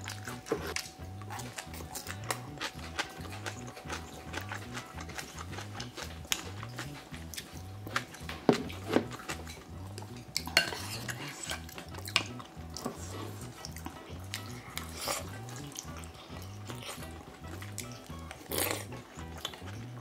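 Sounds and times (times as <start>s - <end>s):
utensils clinking against pots: 10.4s - 12.3s.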